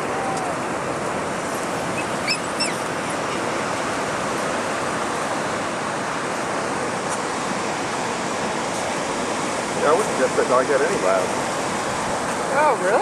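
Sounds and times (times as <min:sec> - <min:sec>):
ocean surf breaking: 0:00.0 - 0:13.0
high chirps: 0:02.0 - 0:02.8.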